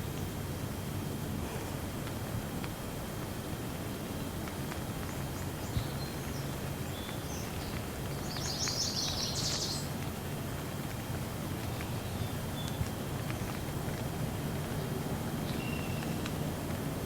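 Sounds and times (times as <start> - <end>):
light rain: 0.0 - 17.0
bird chirping: 5.6 - 9.9, 15.4 - 16.2.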